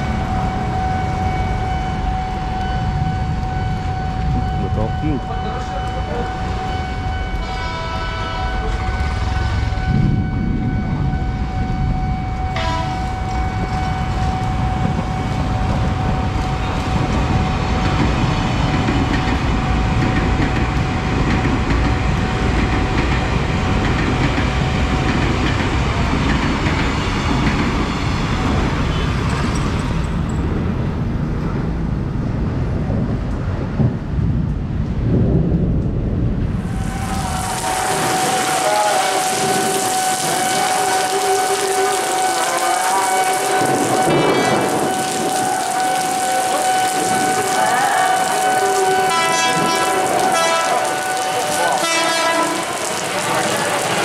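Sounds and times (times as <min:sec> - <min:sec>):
crossing signal warning tone: 0:00.0 - 0:21.4, 0:36.8 - 0:52.5
train wheels and motors rumbling: 0:00.0 - 0:54.0
train horn: 0:05.4 - 0:17.0, 0:36.9 - 0:53.8.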